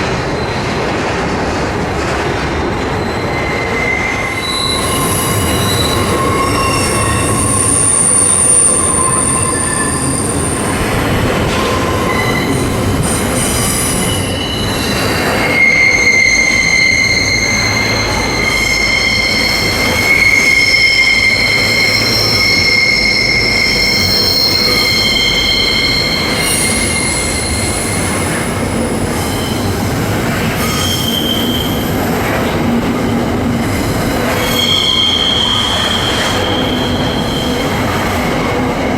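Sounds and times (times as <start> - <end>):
train wheels squealing on rails: 0.0 - 1.0, 2.9 - 38.9
train rolling rumble: 0.0 - 38.9.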